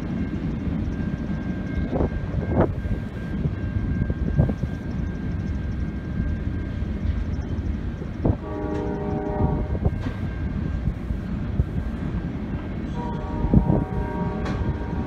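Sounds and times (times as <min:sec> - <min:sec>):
freight train rumbling: 0:00.0 - 0:15.0
train cars clanking: 0:00.0 - 0:15.0.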